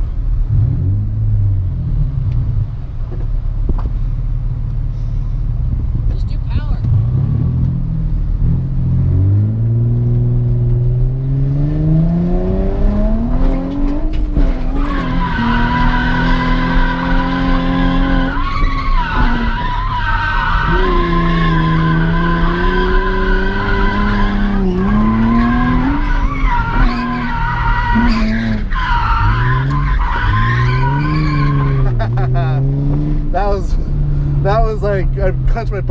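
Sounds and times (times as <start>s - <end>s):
car engine revving: 4.4s - 35.9s
tires squealing: 11.8s - 35.9s.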